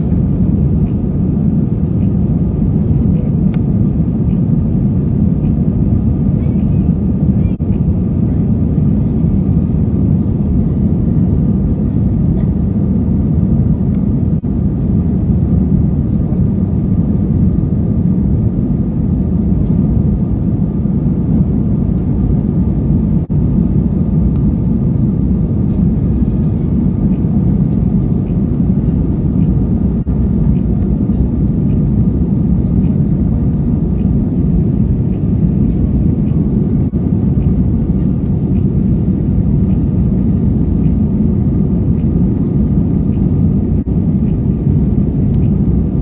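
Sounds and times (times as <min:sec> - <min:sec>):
faint steady whine: 0:00.0 - 0:46.0
vehicle rumble: 0:18.4 - 0:46.0.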